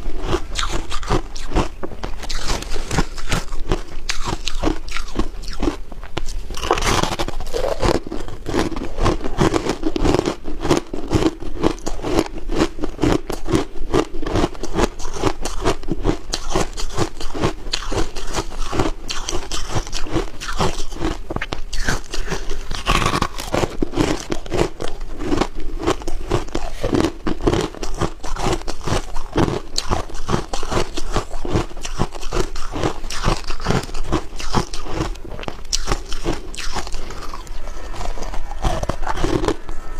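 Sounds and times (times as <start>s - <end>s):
person chewing ice: 0.0s - 39.9s.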